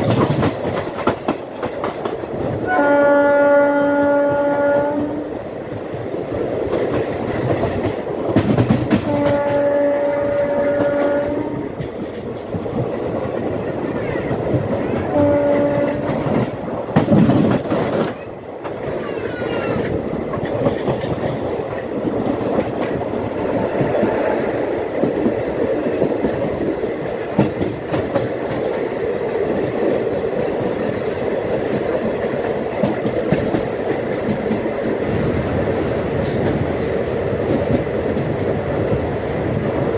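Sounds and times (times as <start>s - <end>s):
train wheels rumbling on rails: 0.0s - 39.9s
train horn blast: 2.6s - 5.4s, 9.0s - 11.8s, 15.0s - 16.4s.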